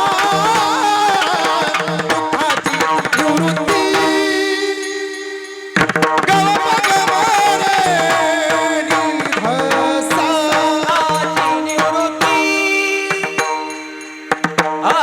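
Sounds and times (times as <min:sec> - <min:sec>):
man singing devotional line: 0:00.0 - 0:15.0.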